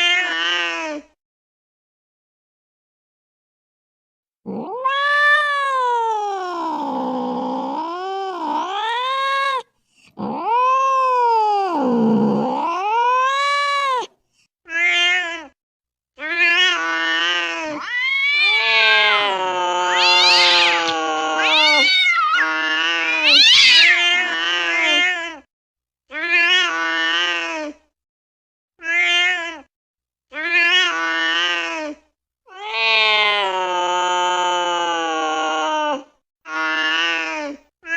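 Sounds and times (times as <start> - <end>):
cat yowling: 4.6 - 6.2, 17.6 - 25.2.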